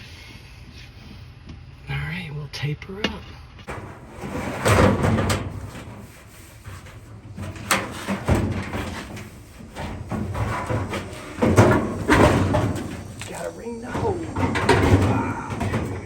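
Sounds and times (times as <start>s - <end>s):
rubbing and scraping: 3.6s - 16.0s.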